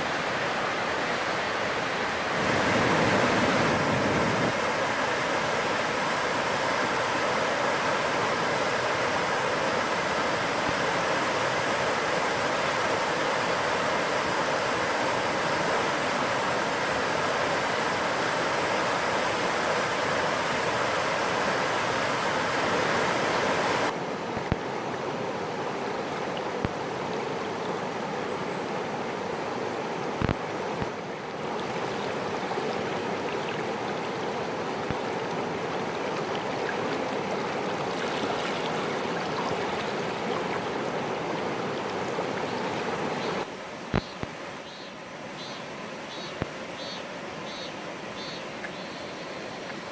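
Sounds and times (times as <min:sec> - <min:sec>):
stream rushing over its bed: 0:00.0 - 0:49.9.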